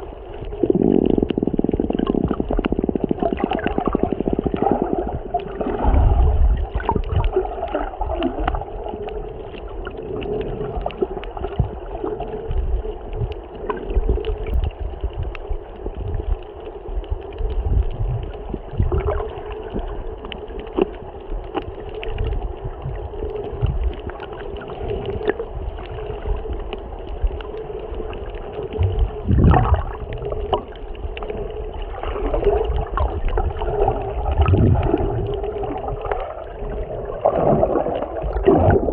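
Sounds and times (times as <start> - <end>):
muffled underwater gurgling: 0.0 - 38.9
low rumbles: 24.8 - 38.9.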